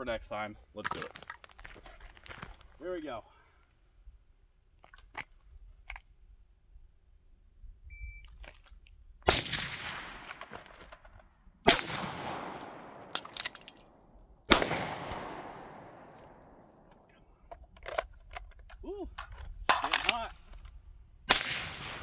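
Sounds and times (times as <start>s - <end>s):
suppressed rifle shots with echo: 9.3s - 11.0s, 11.7s - 17.1s, 21.3s - 22.0s
sharp metallic clicks: 11.7s - 13.9s, 14.5s - 16.6s.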